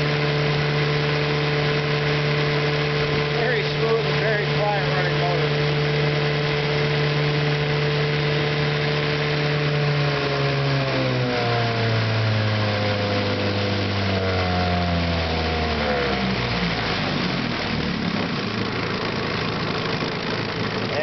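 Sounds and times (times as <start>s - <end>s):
outboard motor running: 0.0s - 21.0s.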